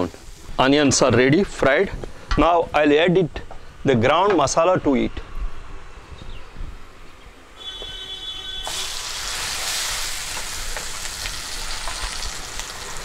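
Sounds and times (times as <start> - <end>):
paste sizzling in hot oil: 0.0 - 1.0, 8.6 - 13.0.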